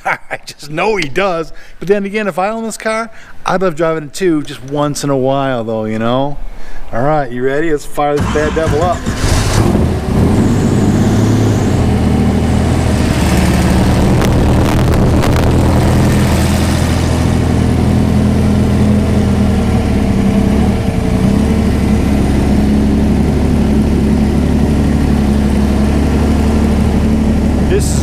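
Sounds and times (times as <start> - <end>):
racing engine idling loudly: 8.2 - 28.0.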